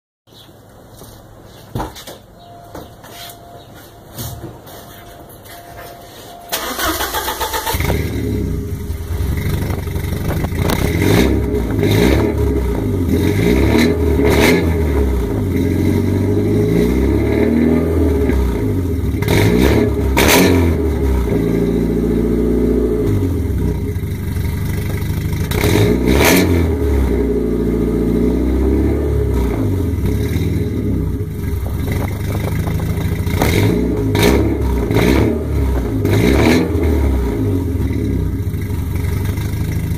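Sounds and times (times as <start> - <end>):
sharp exhaust cracks: 6.5 - 16.8, 30.0 - 39.9
car engine revving: 6.6 - 39.9.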